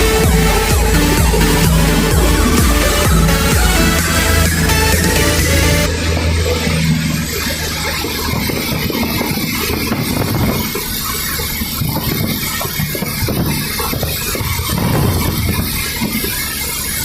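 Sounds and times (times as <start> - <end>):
low hum: 0.0 - 17.0
light aircraft engine and airflow: 4.2 - 17.0.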